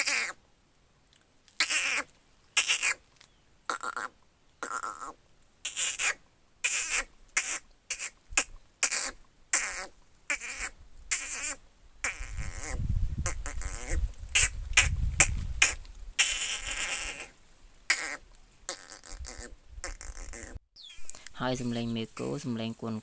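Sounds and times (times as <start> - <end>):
person imitating animal calls: 0.0 - 0.4, 1.6 - 3.0, 3.7 - 21.7.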